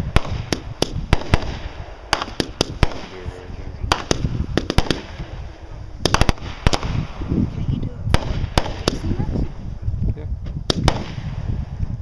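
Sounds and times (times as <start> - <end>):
fireworks bangs: 0.0 - 9.8, 10.5 - 12.0
low rumble: 3.0 - 12.0.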